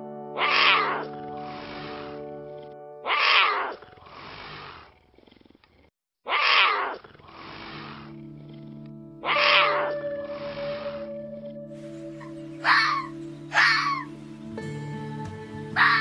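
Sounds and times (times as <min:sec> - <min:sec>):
big cat growling: 0:00.4 - 0:14.1
rasping breath: 0:01.1 - 0:02.8, 0:03.7 - 0:06.0, 0:07.0 - 0:09.1, 0:10.1 - 0:13.1
steady musical drone: 0:08.1 - 0:16.0.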